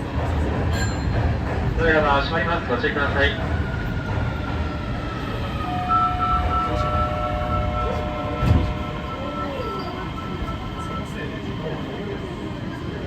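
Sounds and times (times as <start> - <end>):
low rumble of train wheels: 0.0 - 13.0.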